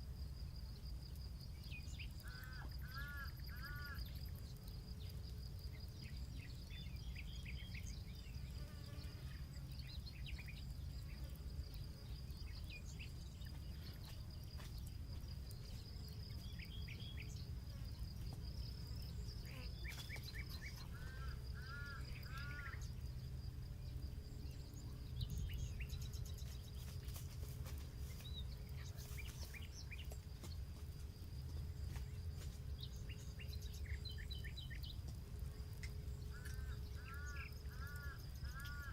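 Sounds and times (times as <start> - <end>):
high insect drone: 0.0 - 38.9
campfire crackling: 0.2 - 8.2, 10.4 - 19.3, 26.5 - 38.8.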